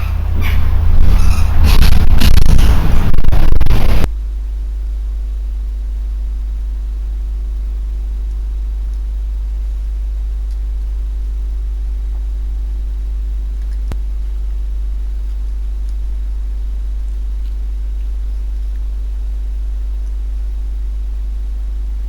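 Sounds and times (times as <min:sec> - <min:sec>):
loud harsh noise: 0:00.0 - 0:04.1
low electrical hum: 0:00.0 - 0:22.0
click: 0:08.2 - 0:09.1, 0:10.4 - 0:10.6, 0:13.6 - 0:14.0.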